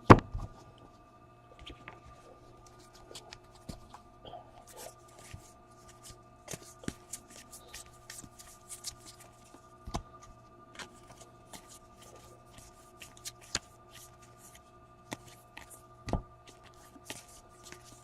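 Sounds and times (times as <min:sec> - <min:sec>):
faint steady hum: 0:00.0 - 0:18.0
cards snapping and rustling: 0:04.6 - 0:18.0.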